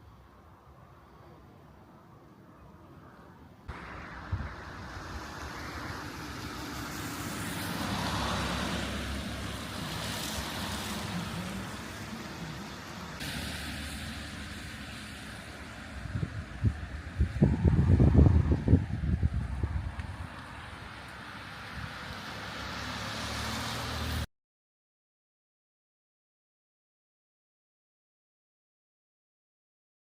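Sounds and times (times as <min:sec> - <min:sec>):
vehicle passing: 0:03.7 - 0:24.3.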